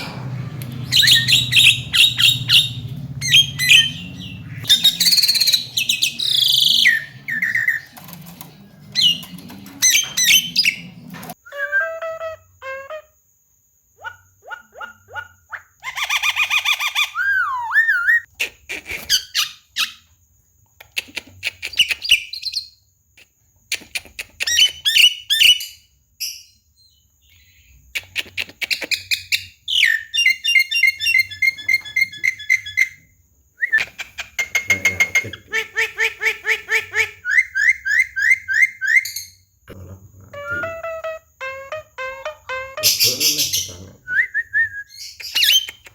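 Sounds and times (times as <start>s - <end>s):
myna bird singing: 0.0s - 12.0s, 33.8s - 39.2s.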